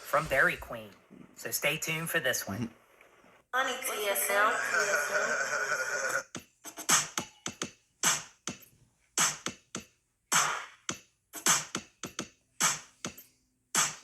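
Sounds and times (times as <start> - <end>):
drum machine beat: 6.2 - 14.0.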